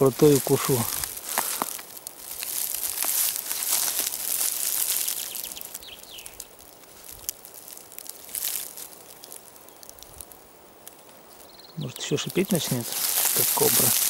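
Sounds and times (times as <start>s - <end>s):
dry leaves rustling: 0.0s - 14.0s.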